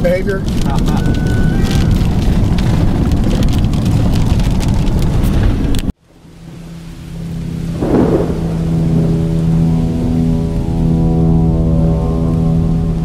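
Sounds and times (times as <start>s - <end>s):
rain pattering on windshield: 0.0s - 11.3s
road and wind noise: 0.0s - 13.0s
thunder: 0.5s - 5.9s, 7.7s - 10.4s
steady music chord: 7.4s - 13.0s.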